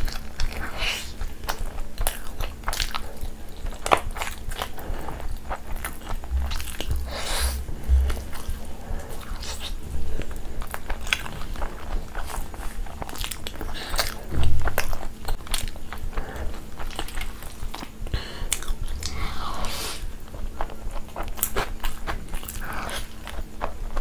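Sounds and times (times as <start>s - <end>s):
person chewing chicken wing: 0.0s - 24.0s
low thud: 6.3s - 8.6s.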